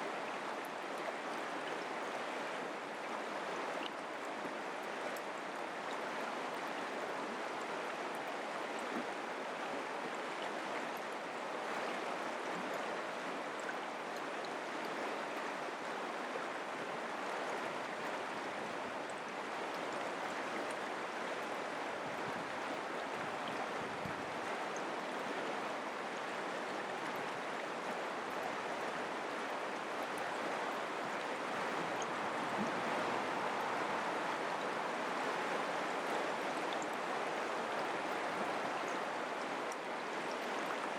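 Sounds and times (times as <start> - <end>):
creek water rushing: 0.0 - 40.9.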